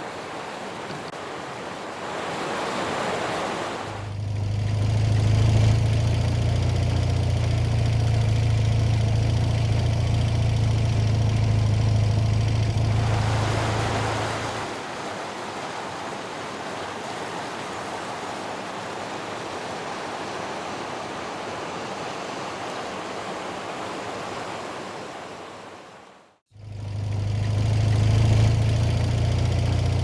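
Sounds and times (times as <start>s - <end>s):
motorcycle engine idling: 4.1s - 13.2s, 26.5s - 30.0s.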